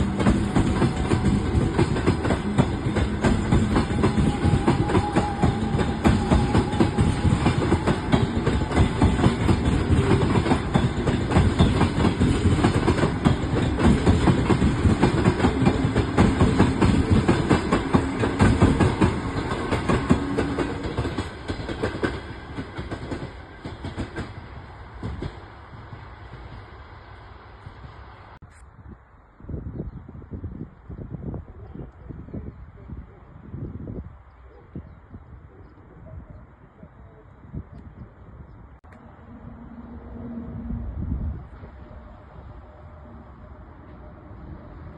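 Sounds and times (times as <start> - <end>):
train wheels clattering over rails: 0.0 - 26.8.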